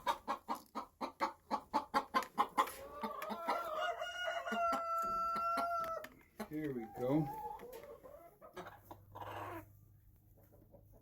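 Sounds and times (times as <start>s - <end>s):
chickens clucking: 0.0s - 11.0s
chicken long drawn-out call: 2.9s - 6.1s.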